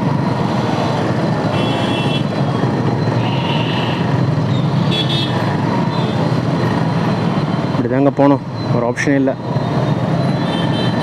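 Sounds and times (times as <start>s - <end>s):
vehicle engines rumbling: 0.0s - 11.0s
vehicle horn toots: 1.5s - 2.3s, 4.9s - 5.4s.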